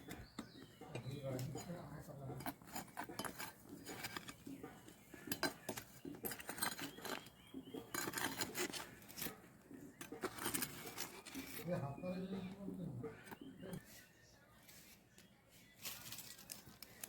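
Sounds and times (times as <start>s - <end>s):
metal utensils clinking on cookware: 0.0s - 13.8s.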